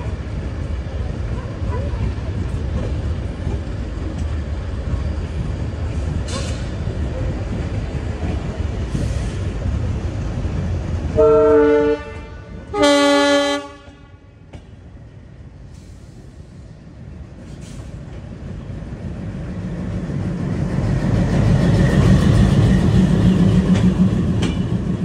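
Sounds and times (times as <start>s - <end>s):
train rumbling into station: 0.0s - 25.0s
locomotive horn blasts: 11.2s - 14.2s.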